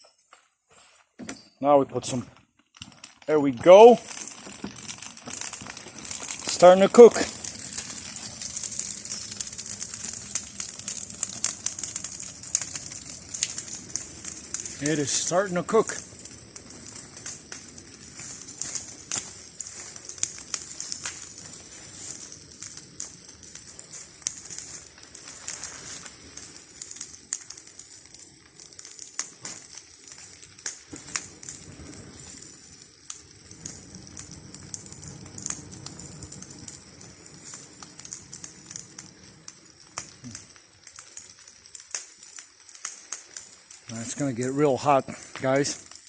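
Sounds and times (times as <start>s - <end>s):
wood fire crackling and popping: 1.2s - 46.0s.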